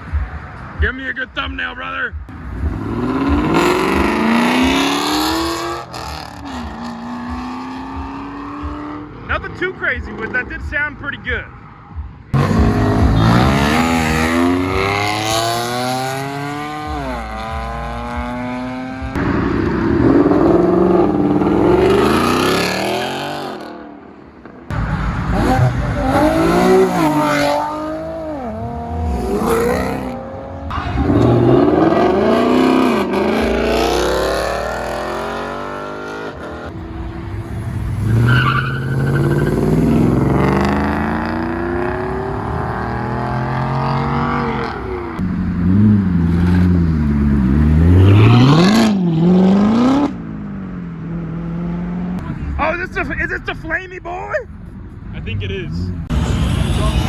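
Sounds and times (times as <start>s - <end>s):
car engine revving hard: 2.3s - 9.2s, 12.4s - 23.9s, 24.7s - 50.2s.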